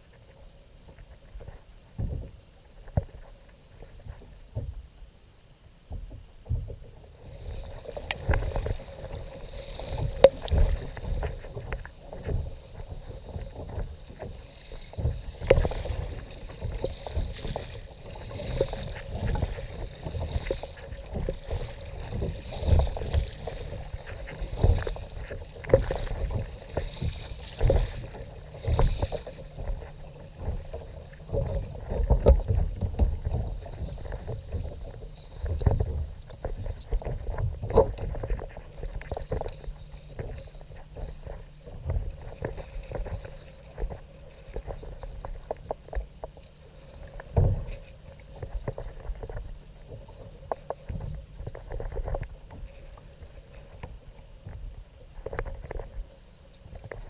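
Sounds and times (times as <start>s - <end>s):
paddle splashing: 7.1s - 37.0s.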